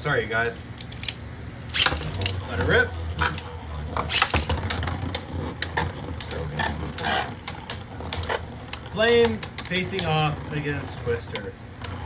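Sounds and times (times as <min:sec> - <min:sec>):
spinning tops clacking: 0:00.8 - 0:12.0.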